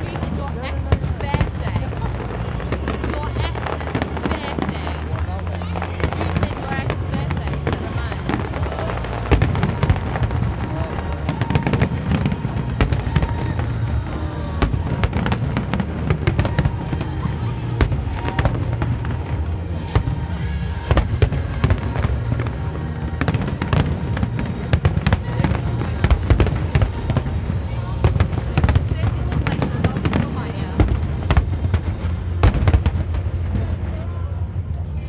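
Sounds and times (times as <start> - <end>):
fireworks bursting: 0.0 - 34.5.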